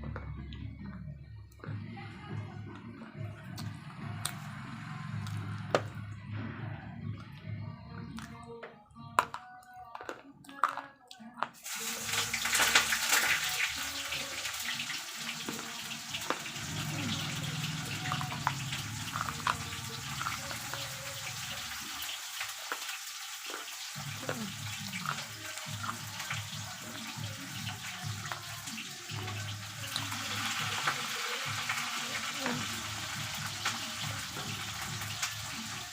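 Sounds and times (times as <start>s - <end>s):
slate pencils being chewed: 9.2s - 11.6s, 18.0s - 26.5s.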